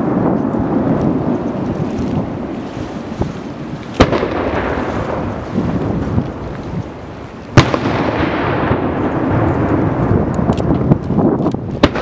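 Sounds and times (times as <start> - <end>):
fireworks bangs with echo: 3.9 - 6.0, 7.5 - 11.0, 11.7 - 12.0.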